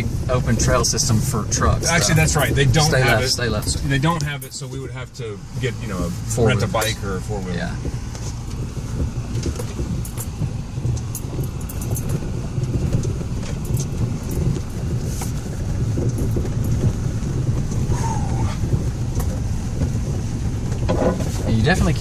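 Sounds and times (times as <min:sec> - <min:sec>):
low rumble of engine and tyres: 0:00.0 - 0:22.0.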